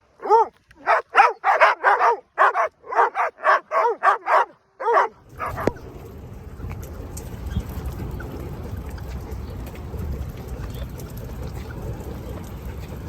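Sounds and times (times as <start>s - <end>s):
dog barking: 0.2s - 5.8s.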